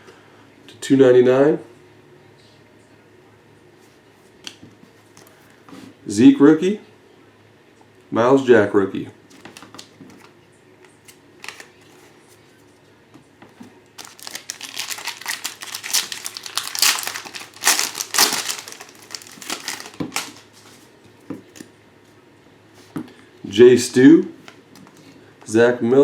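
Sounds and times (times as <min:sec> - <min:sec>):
plastic wrapper tearing and crinkling: 0:11.4 - 0:11.8, 0:14.0 - 0:20.8.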